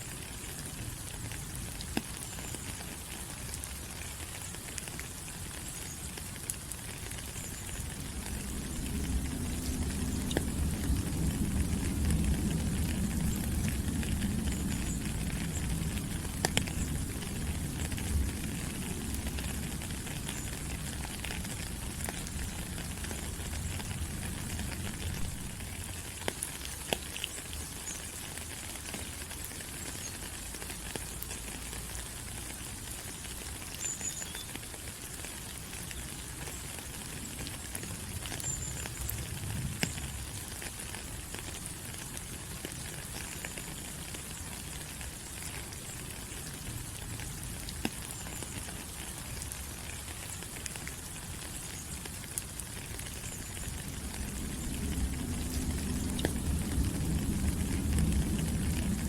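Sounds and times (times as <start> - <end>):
rain on leaves: 0.0 - 59.0
low rumble: 53.8 - 59.0.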